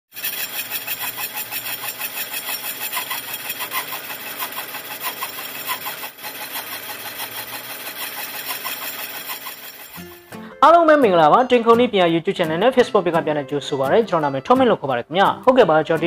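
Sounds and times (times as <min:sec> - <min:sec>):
machine pulsing: 0:00.1 - 0:10.0.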